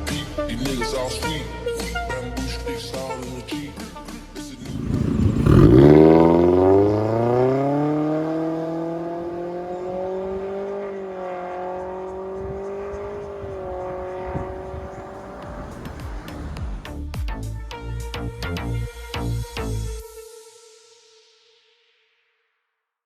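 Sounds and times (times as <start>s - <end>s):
car engine accelerating: 4.6s - 17.0s.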